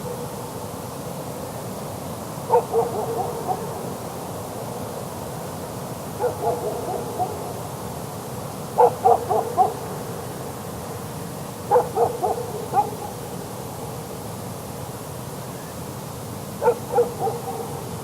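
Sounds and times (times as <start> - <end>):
distant dog barking: 0.0 - 0.5, 2.5 - 4.2, 6.2 - 7.7, 8.8 - 10.3, 11.7 - 13.4, 16.6 - 18.0
steady hiss: 0.0 - 18.0.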